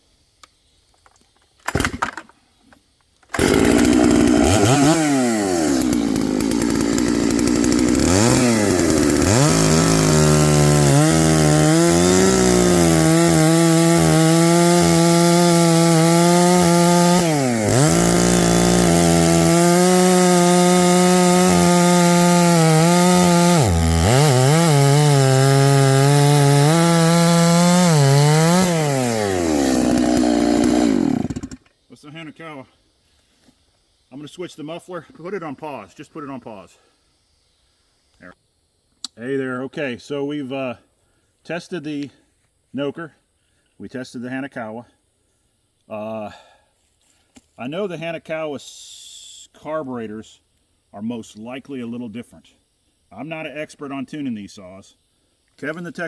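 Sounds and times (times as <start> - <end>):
chainsaw revving: 3.3 - 31.6.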